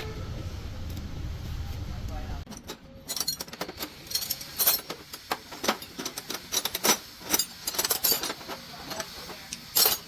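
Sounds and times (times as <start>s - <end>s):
metal tools clinking: 2.5s - 10.0s.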